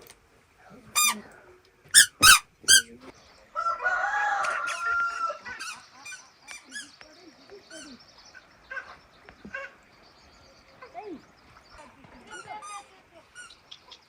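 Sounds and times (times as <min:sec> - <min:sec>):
rooster crowing: 0:03.6 - 0:05.7.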